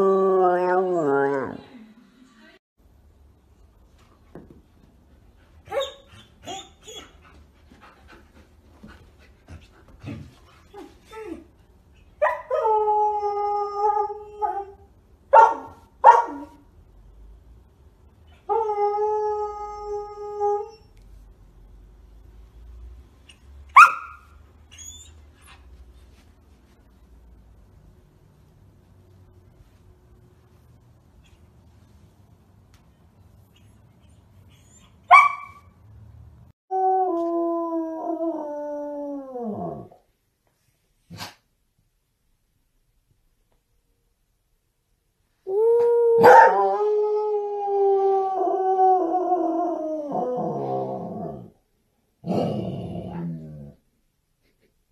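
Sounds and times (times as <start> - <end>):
dog barking: 15.3 - 16.5, 23.8 - 24.2, 35.1 - 35.6, 46.2 - 46.6
dog yipping: 23.8 - 25.2, 34.5 - 35.7.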